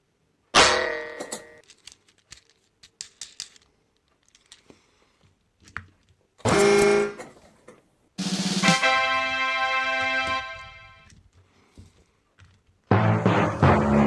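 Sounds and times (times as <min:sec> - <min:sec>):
music: 0:08.2 - 0:11.1, 0:12.9 - 0:14.0.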